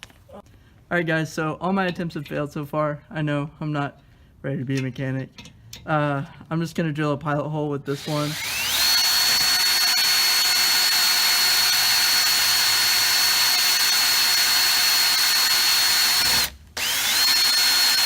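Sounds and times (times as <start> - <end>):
power drill motor whine: 8.0 - 18.0.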